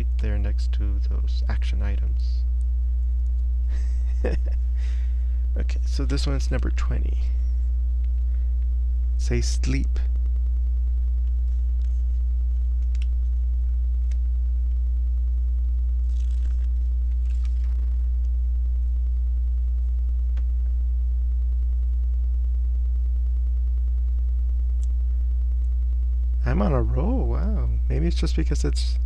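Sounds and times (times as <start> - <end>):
low electrical mains hum: 0.0 - 29.0
soft rustles: 11.3 - 13.4.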